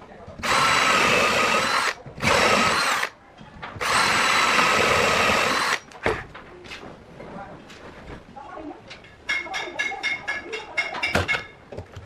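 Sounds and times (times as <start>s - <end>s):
angle grinder whining: 0.4s - 3.1s, 3.8s - 5.8s.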